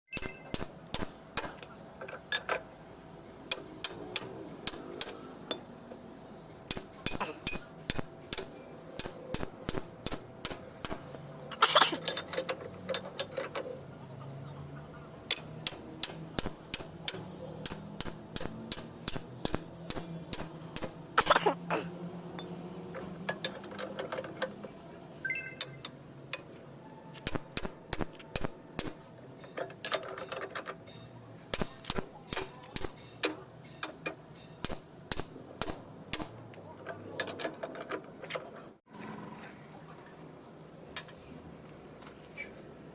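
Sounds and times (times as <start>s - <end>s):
hand tools clinking on metal: 10.5s - 13.8s, 28.4s - 35.2s.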